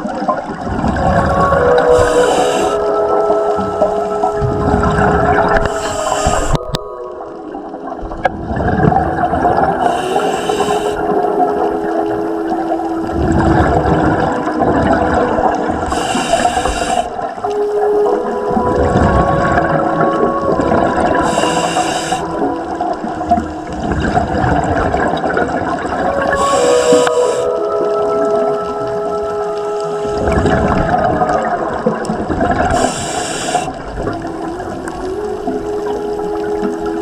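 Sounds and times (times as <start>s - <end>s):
bubbling exhalations: 0.0s - 6.9s
regulator hissing inhale: 1.9s - 2.9s, 5.6s - 6.6s, 9.8s - 11.1s, 15.8s - 17.3s, 21.2s - 22.4s, 26.4s - 27.6s, 32.8s - 33.8s.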